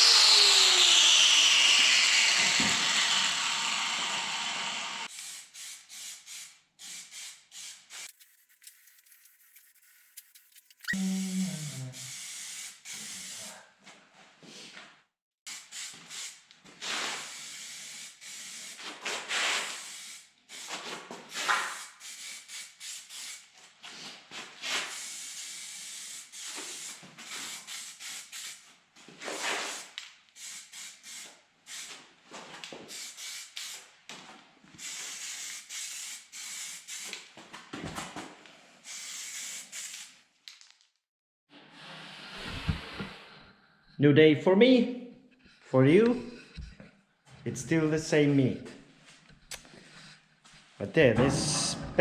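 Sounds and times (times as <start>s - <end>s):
spray paint hissing bursts: 5.0s - 11.0s, 11.9s - 13.5s, 15.5s - 23.5s, 24.8s - 28.7s, 29.6s - 32.0s, 32.9s - 33.9s, 34.8s - 37.2s, 38.8s - 40.2s.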